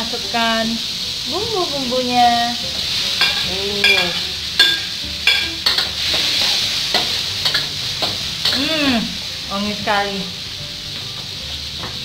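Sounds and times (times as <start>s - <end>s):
vegetables sizzling in butter: 0.0s - 12.0s
metal spatula scraping wok: 2.7s - 9.6s.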